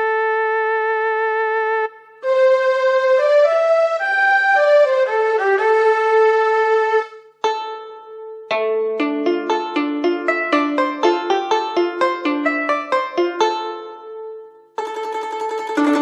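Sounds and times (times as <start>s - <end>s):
keyboard violin melody: 1.0s - 16.0s
quick plucked notes: 7.4s - 16.0s.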